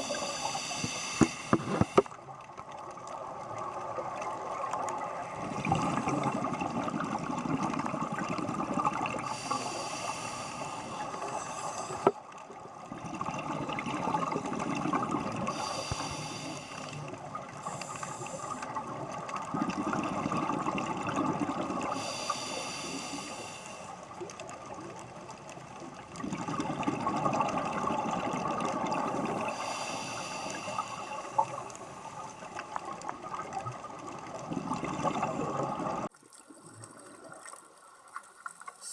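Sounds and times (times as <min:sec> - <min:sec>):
regulator hiss on inhale: 0:00.0 - 0:02.2, 0:09.2 - 0:12.2, 0:15.5 - 0:18.9, 0:21.8 - 0:24.2, 0:29.1 - 0:32.8
exhaled bubbles: 0:03.2 - 0:23.4, 0:24.1 - 0:37.8.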